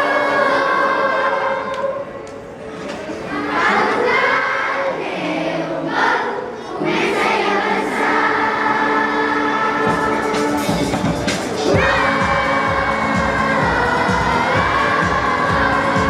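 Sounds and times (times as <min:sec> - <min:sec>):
children singing in chorus: 0:00.0 - 0:02.2, 0:02.9 - 0:16.0
backing music: 0:06.8 - 0:16.0.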